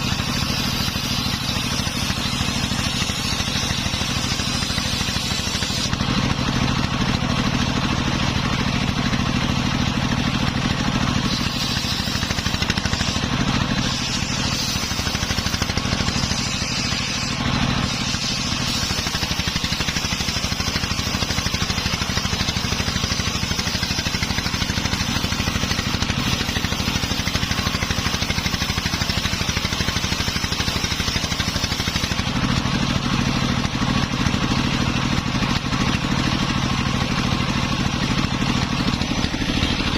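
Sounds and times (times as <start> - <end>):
circular saw cutting wood: 0.0 - 39.9
engine humming: 35.5 - 39.9.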